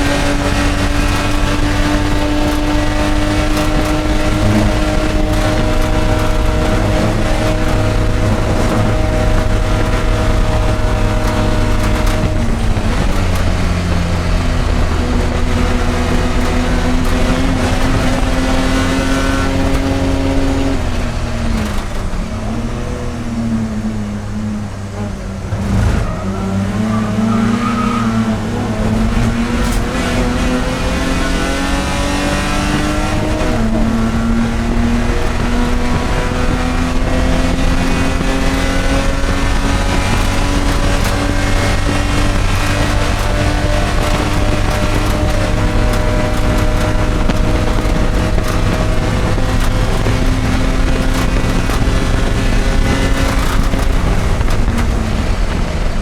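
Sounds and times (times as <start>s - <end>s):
race car engine revving: 0.0s - 56.0s
car jolt: 25.1s - 56.0s.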